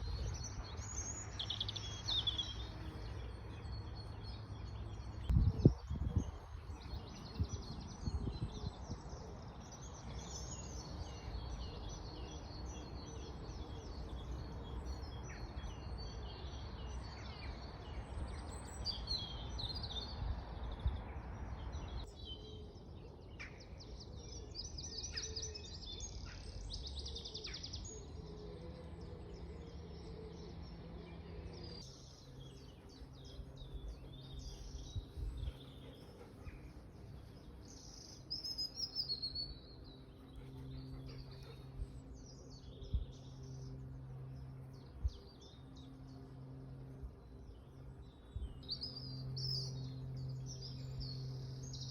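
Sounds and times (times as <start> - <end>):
songbirds singing and chirping: 0.0 - 51.9.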